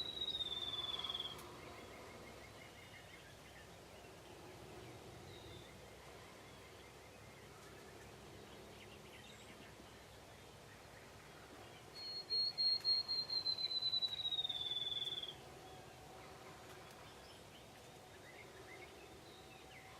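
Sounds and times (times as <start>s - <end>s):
songbird trilling: 0.0s - 3.3s, 11.9s - 15.4s
distant bird calls: 0.0s - 19.9s.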